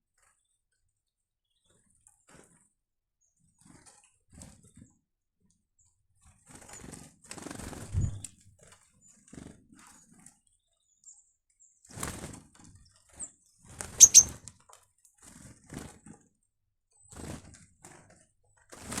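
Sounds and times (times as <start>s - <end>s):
bird wings flapping: 6.5s - 8.4s, 18.7s - 19.0s
birds chirping: 14.0s - 14.3s.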